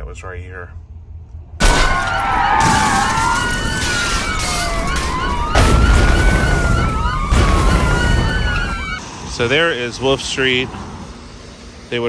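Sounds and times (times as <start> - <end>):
street noise: 1.4 - 12.0
police sirens wailing: 1.6 - 12.0.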